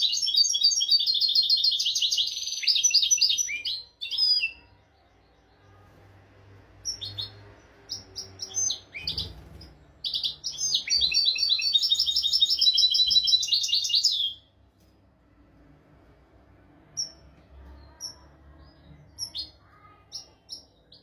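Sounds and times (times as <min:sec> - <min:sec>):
bird singing: 0:00.0 - 0:05.9, 0:06.8 - 0:14.5.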